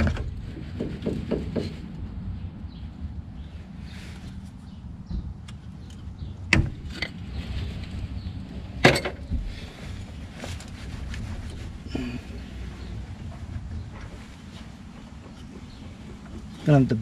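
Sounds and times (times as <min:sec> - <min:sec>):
low steady rumble: 0:00.0 - 0:17.0
metal clanks and knocks: 0:08.8 - 0:09.6, 0:12.7 - 0:17.0.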